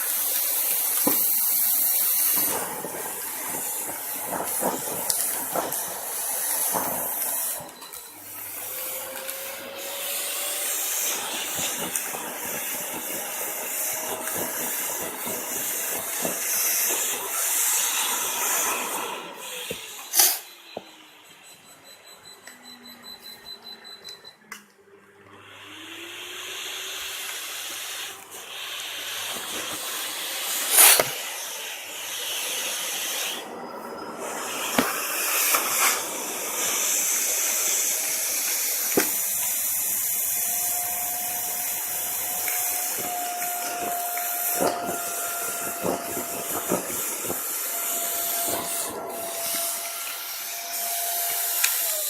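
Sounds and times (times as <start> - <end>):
vacuum cleaner suction: 0.0 - 21.2, 25.2 - 52.0.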